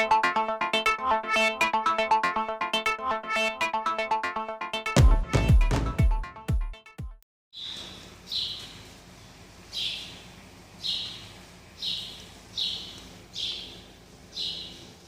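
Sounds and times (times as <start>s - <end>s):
bird chirping raspily: 7.6s - 8.7s, 9.7s - 14.9s.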